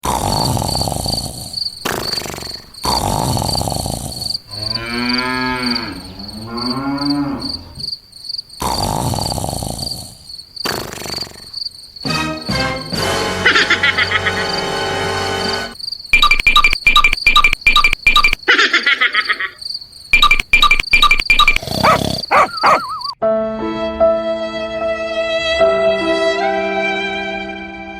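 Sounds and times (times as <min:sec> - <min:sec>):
crickets chirping: 0:00.6 - 0:12.1, 0:15.7 - 0:18.5, 0:19.2 - 0:23.2
cow mooing: 0:04.5 - 0:07.7.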